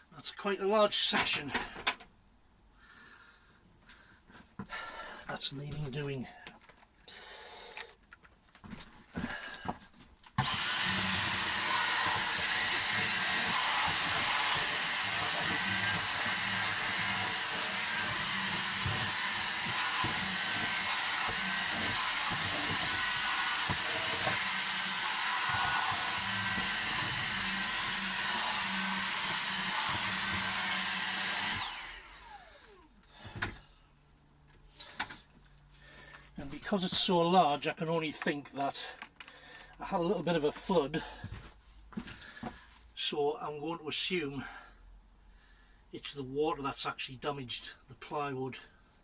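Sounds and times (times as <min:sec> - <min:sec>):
power drill whining: 0:10.4 - 0:33.6.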